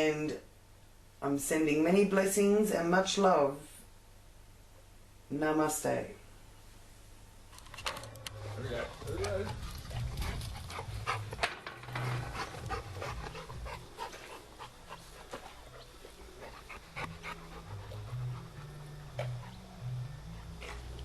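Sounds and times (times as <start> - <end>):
dog panting: 8.3 - 21.0.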